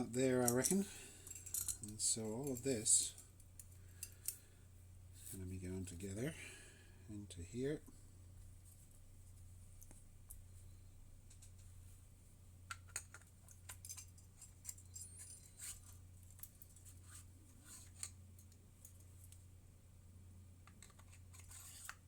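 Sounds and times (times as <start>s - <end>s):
steady low hum: 0.0s - 22.0s
small metal parts clicking: 0.4s - 2.7s, 3.6s - 4.4s, 12.7s - 16.9s.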